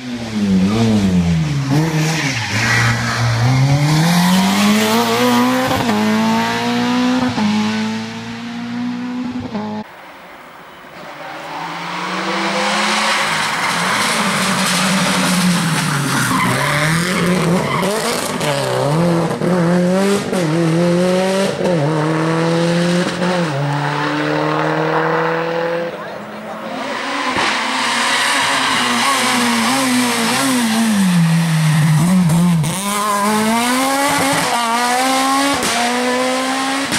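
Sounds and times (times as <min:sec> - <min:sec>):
rally car engine revving: 0:00.0 - 0:09.9, 0:11.3 - 0:36.9.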